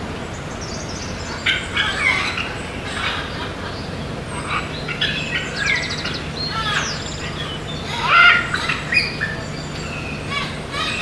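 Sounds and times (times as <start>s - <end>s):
parrots chirping and squawking: 1.2s - 11.0s
parrot rattling call: 4.4s - 11.0s.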